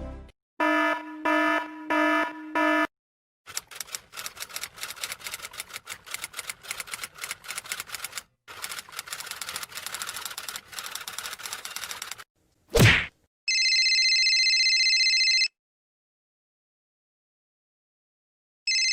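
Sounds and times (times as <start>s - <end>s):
rapid key clicks: 3.5s - 12.2s.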